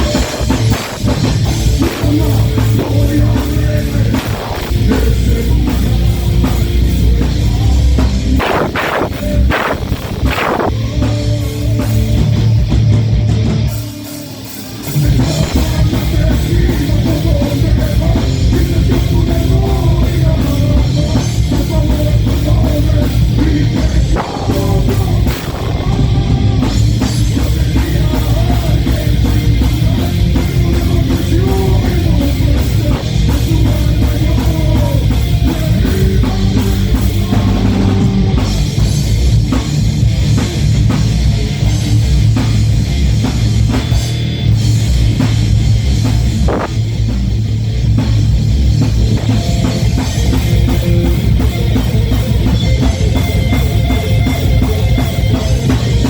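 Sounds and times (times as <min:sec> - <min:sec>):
person singing: 0:00.0 - 0:12.7, 0:13.7 - 0:38.8
heavy metal band playing: 0:00.0 - 0:56.0.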